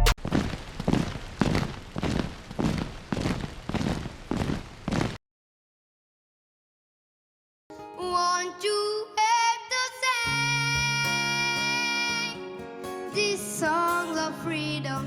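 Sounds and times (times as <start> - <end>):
person singing: 7.8 - 12.4, 13.1 - 15.0.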